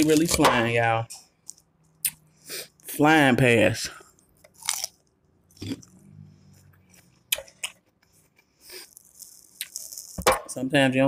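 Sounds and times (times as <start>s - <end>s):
person chewing salad: 1.3s - 2.9s, 4.0s - 10.2s.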